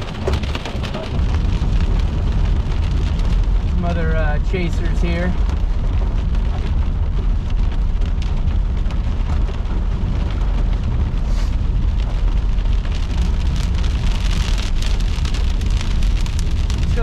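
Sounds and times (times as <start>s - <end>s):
heavy rain hissing on vehicle: 0.0s - 17.0s
low road rumble: 0.0s - 17.0s.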